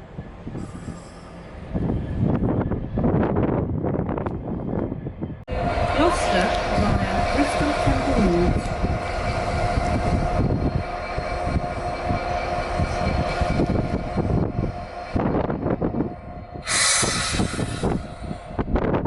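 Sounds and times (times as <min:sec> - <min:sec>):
loud hiss burst: 0:16.6 - 0:17.9.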